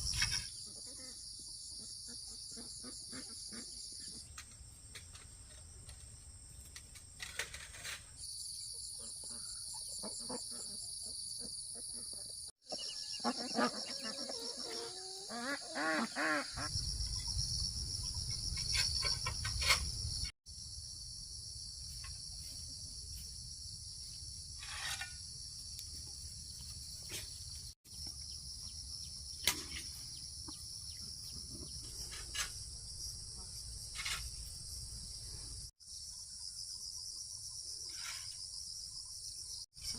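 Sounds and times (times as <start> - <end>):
bird calls: 8.9 - 17.4
insects chirring: 12.6 - 39.9.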